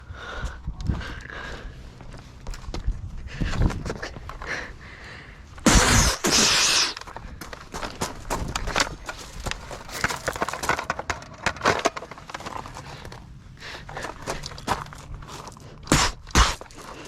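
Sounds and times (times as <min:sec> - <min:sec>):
footsteps on dry ground: 0:00.0 - 0:04.7, 0:07.0 - 0:17.0
loud hissing burst: 0:05.6 - 0:07.0.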